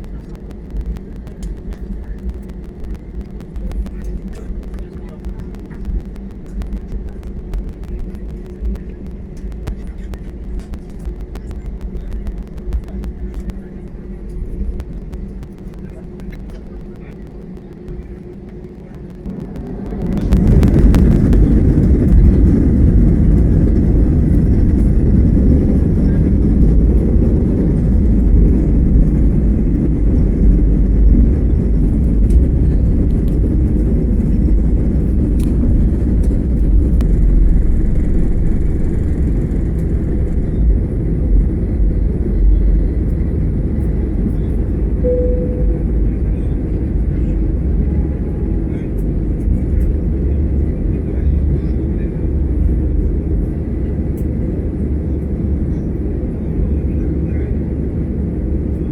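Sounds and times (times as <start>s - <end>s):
jet engines rumbling: 0.0s - 58.9s
brief tone: 45.0s - 46.6s.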